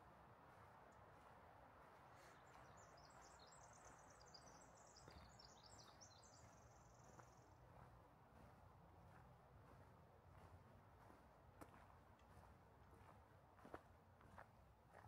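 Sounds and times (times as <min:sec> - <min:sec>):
faint forest background hush: 0:00.0 - 0:15.0
songbird singing trill: 0:02.4 - 0:07.4.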